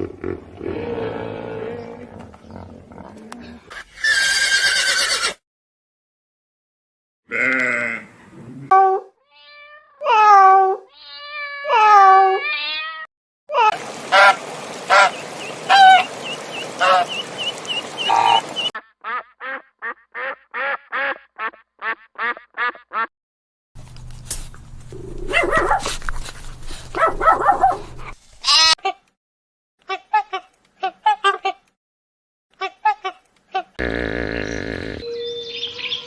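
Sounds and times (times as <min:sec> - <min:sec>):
farm animals calling: 0:13.8 - 0:21.2
ducks quacking: 0:13.8 - 0:23.1.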